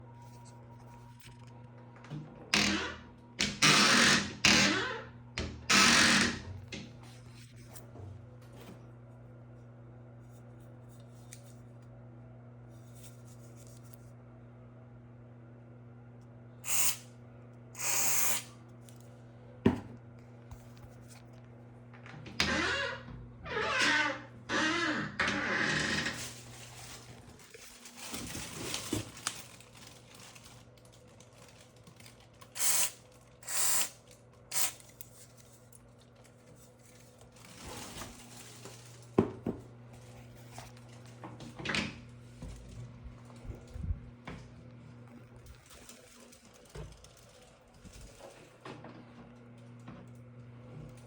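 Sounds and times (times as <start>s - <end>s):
aerosol spray can hissing: 16.6s - 17.0s, 17.8s - 18.5s, 32.6s - 33.9s, 34.5s - 34.8s
aerosol spray hissing: 16.6s - 17.0s, 17.8s - 18.5s.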